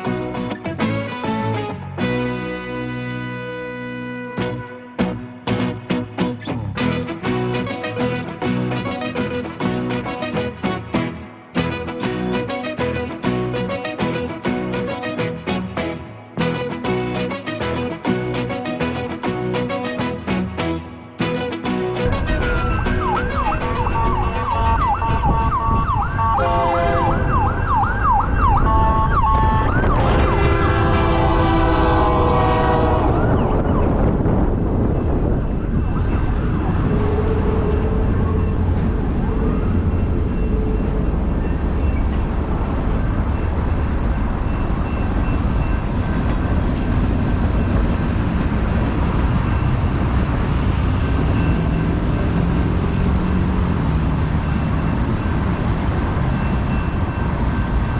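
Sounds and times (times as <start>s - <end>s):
locomotive horn chord: 0.8s - 6.1s, 6.8s - 20.6s, 21.4s - 27.5s, 28.4s - 33.5s, 36.8s - 41.8s
freight train rumbling: 21.2s - 57.9s
siren yelping: 22.0s - 34.2s, 35.0s - 45.8s.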